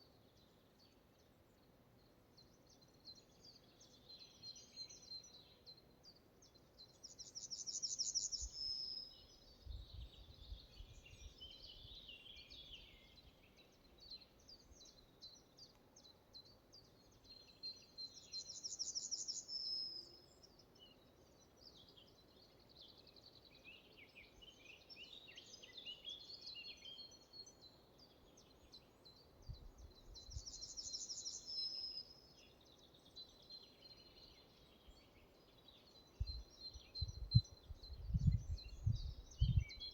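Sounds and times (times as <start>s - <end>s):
birds chirping softly: 0.0s - 39.9s.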